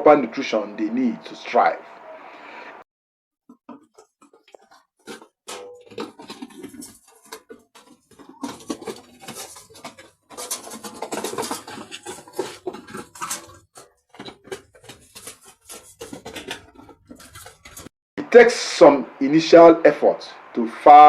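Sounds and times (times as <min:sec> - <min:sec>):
clattering and scraping: 0:03.7 - 0:17.9.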